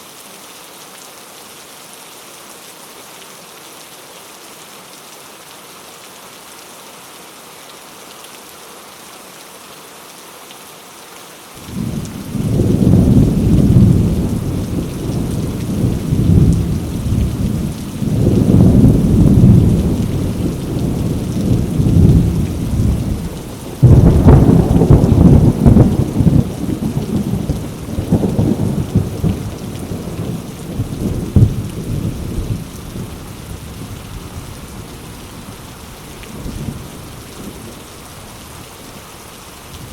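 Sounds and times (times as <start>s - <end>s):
heavy rain on leaves: 0.0s - 39.9s
thunder rumbling: 11.6s - 34.4s.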